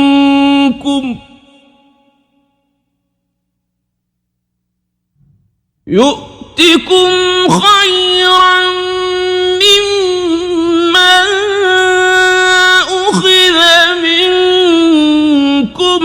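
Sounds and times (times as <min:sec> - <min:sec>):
man chanting melodic recitation: 0:05.9 - 0:16.0.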